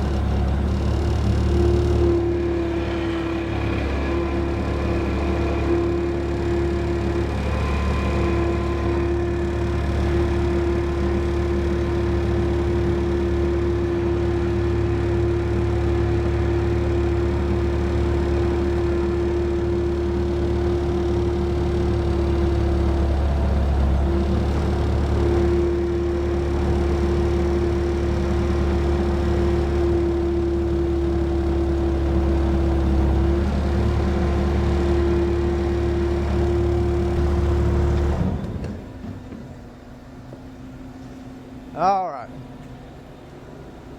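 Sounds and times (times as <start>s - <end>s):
steady mechanical hum: 37.0s - 43.9s.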